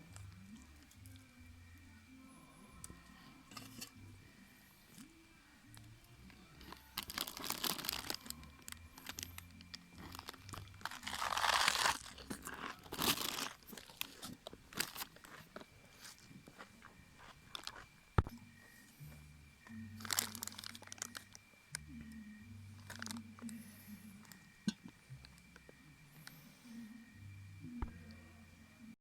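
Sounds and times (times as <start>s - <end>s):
crunching and crinkling: 6.2s - 18.4s, 19.6s - 22.0s, 22.7s - 26.4s.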